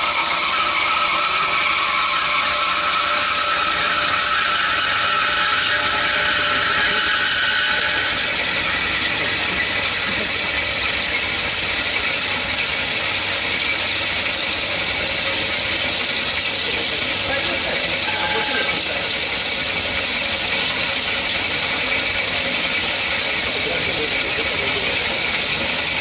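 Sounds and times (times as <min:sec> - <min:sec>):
band saw running: 0:00.0 - 0:26.0
high ringing tone: 0:02.9 - 0:10.2, 0:17.3 - 0:19.5.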